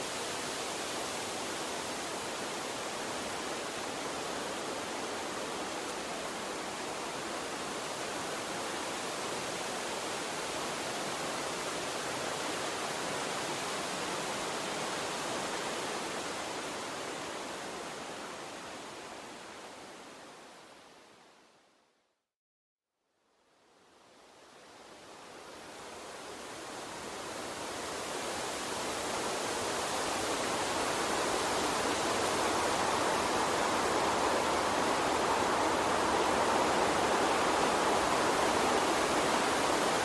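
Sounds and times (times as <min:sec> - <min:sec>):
water stream running: 0:26.7 - 0:40.0.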